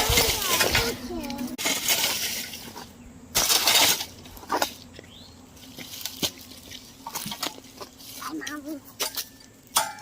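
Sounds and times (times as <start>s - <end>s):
shovel scraping gravel: 0.0s - 4.8s.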